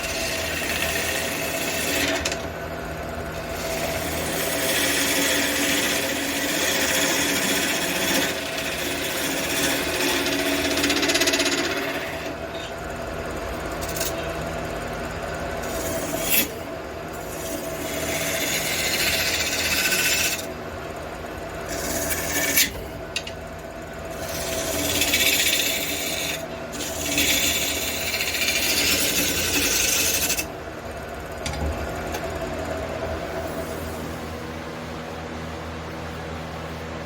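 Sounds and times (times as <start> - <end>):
wood lathe humming: 0.0 - 34.4
tool scraping spinning wood: 0.0 - 37.0.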